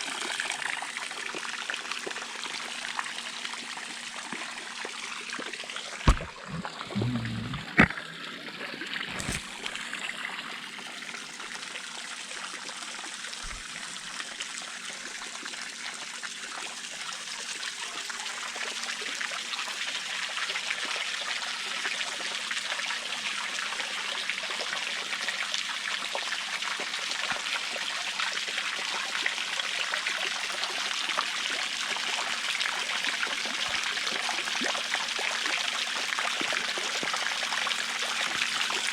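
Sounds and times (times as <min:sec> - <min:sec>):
water falling and splashing: 0:06.0 - 0:07.9.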